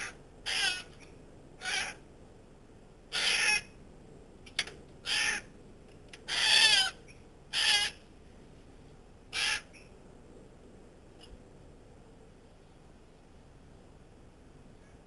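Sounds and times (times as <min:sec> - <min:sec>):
harsh bird calls: 0:00.0 - 0:02.0, 0:03.1 - 0:03.7, 0:05.0 - 0:05.5, 0:06.2 - 0:08.0, 0:09.3 - 0:09.9.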